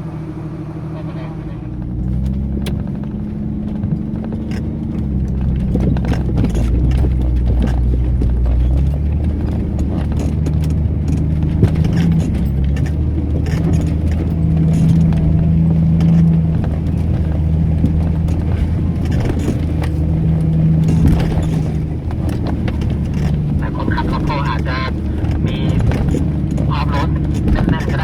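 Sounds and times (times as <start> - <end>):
vehicle engine humming under load: 0.0 - 28.0
knocks and rattles over bumps: 1.7 - 28.0.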